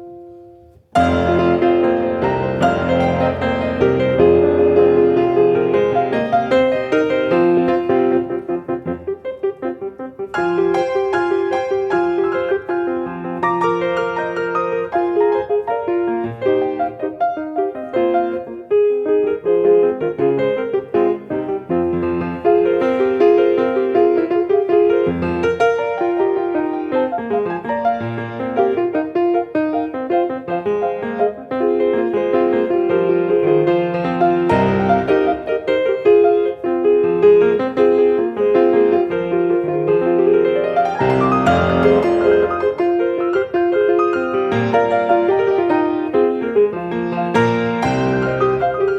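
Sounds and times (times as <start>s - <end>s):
piano melody with chords: 0.0s - 48.9s.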